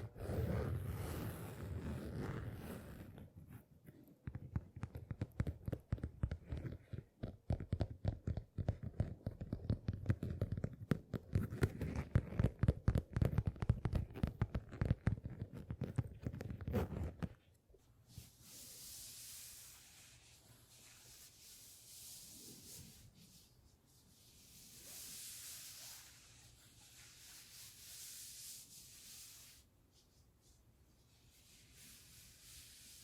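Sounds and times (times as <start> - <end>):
tapping and scratching on object: 3.8 - 17.4.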